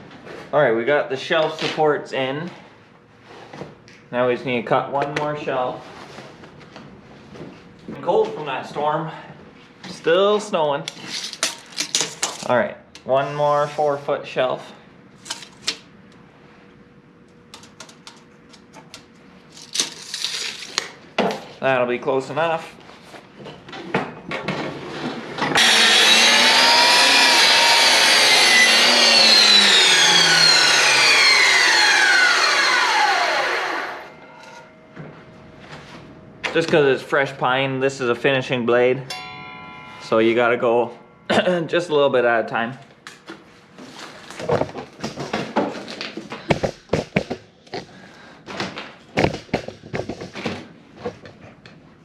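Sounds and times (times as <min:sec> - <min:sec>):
power saw cutting wood: 0:25.4 - 0:34.7.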